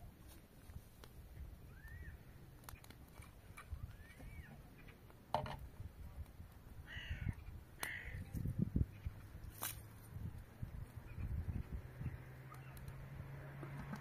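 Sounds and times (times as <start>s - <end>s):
birds calling: 1.4s - 5.2s, 6.8s - 9.6s, 10.8s - 14.0s.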